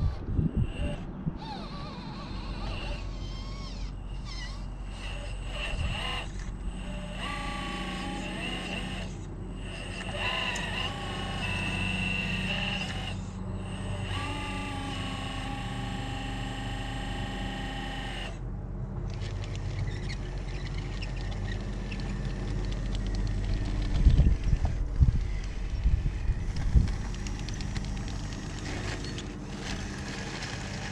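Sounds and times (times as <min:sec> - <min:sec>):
wind buffeting microphone: 0:00.0 - 0:03.0, 0:22.4 - 0:29.0
electric motor and gear whine: 0:00.0 - 0:30.9.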